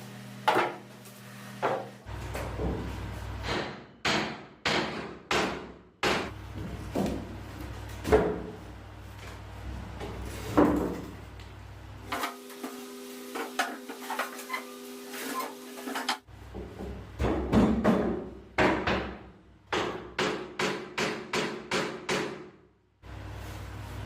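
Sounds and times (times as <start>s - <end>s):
hammer striking wood: 3.4s - 6.4s, 16.6s - 22.6s.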